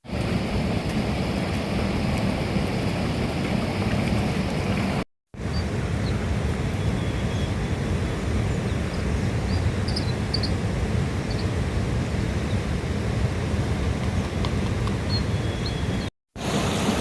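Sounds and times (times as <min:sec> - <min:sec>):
low outdoor rumble: 0:00.1 - 0:16.1
faint high chirps: 0:08.7 - 0:10.6.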